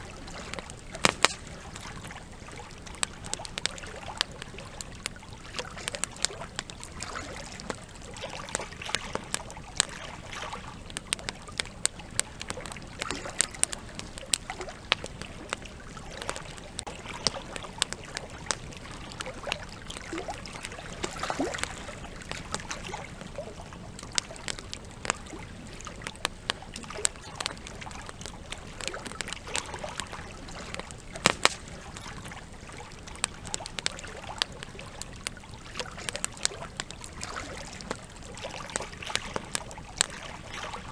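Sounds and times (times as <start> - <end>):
campfire crackling: 0.0 - 40.9.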